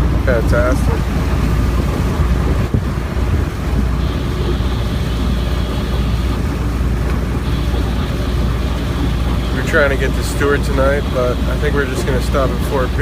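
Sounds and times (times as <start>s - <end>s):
wind noise: 0.0s - 9.4s
steady low rumble: 0.0s - 13.0s.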